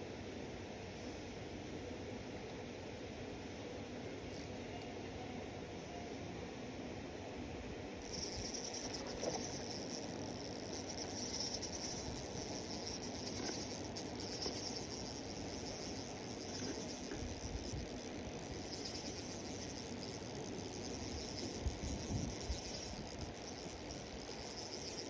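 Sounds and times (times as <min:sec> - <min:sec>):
low outdoor background noise: 0:00.0 - 0:25.0
high insect-like trilling: 0:04.3 - 0:04.5, 0:08.0 - 0:25.0.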